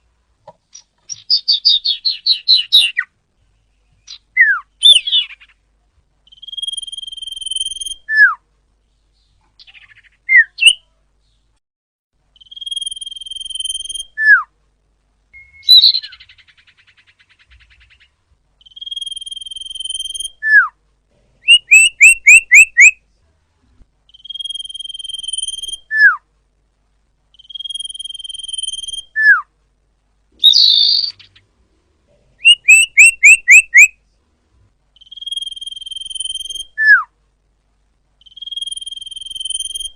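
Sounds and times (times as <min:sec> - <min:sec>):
bird whistling call: 0:15.4 - 0:16.5, 0:21.4 - 0:23.0, 0:24.1 - 0:26.2, 0:27.4 - 0:29.5, 0:30.4 - 0:31.3, 0:32.4 - 0:33.9, 0:35.0 - 0:37.1, 0:38.2 - 0:39.9.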